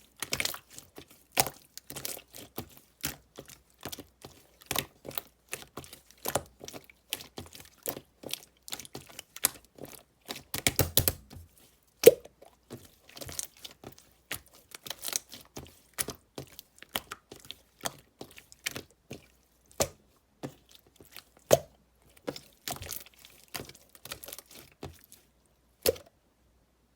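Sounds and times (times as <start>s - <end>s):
slime clicking and popping: 10.5s - 11.3s.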